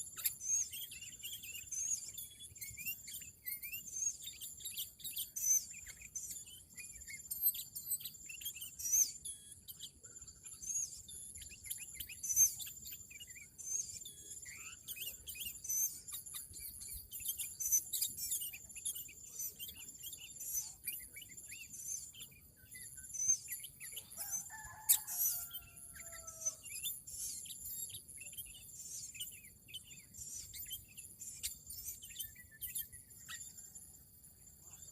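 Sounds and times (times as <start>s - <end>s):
small birds chirping: 0.0s - 34.9s
rooster crowing: 24.2s - 26.6s.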